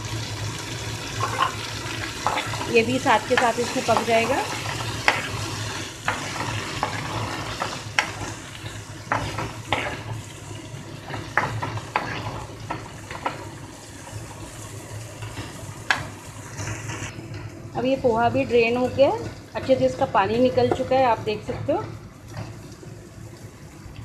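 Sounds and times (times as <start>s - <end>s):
vegetables sizzling in oil: 0.0s - 24.0s
spoon scraping a pan: 1.2s - 1.6s, 2.2s - 8.3s, 9.1s - 10.2s, 11.1s - 12.5s.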